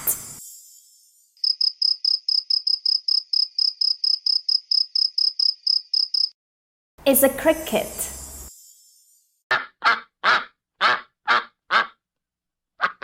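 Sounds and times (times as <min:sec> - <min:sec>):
cricket chirping: 0:00.0 - 0:06.4, 0:08.1 - 0:09.4.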